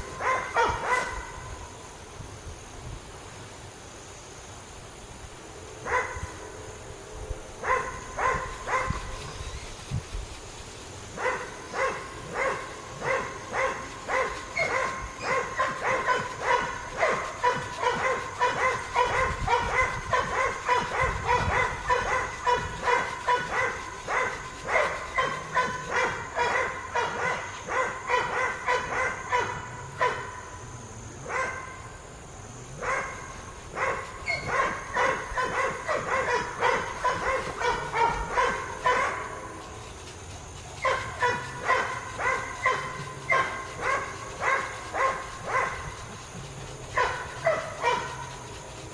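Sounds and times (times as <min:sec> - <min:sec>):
dog barking: 0:00.1 - 0:01.4, 0:05.8 - 0:06.2, 0:07.6 - 0:09.0, 0:11.2 - 0:30.4, 0:31.2 - 0:31.8, 0:32.8 - 0:39.6, 0:40.8 - 0:48.6.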